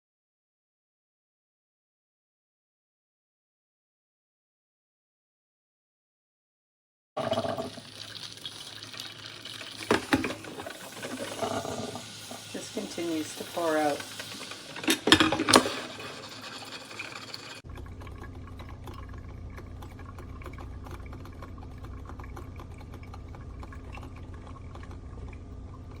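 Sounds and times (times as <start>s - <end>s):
coffee dripping with a hiss: 7.2s - 26.0s
coffee maker brewing: 7.2s - 26.0s
faint ticking drips: 7.3s - 14.8s, 17.0s - 26.0s.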